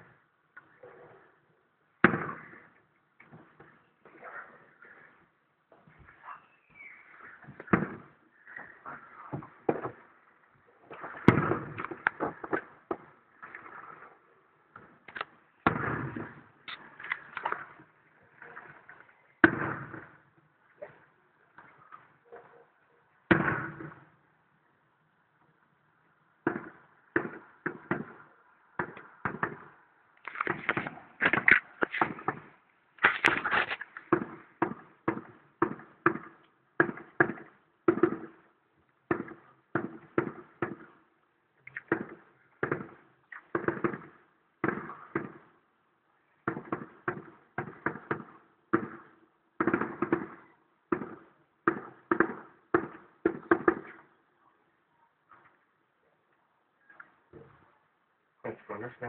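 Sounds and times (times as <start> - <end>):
distant fireworks bangs: 6.0 - 10.1, 14.7 - 21.0, 26.4 - 38.5, 39.1 - 41.0, 41.8 - 45.5, 46.4 - 54.1.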